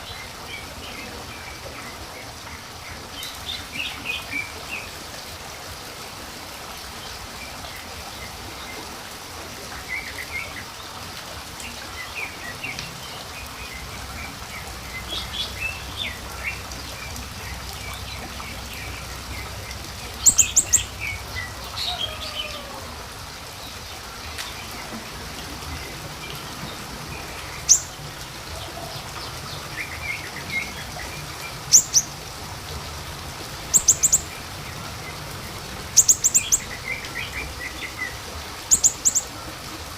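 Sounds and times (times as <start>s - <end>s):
small songbirds chirping: 11.6s - 22.6s, 23.5s - 32.2s, 33.6s - 39.4s.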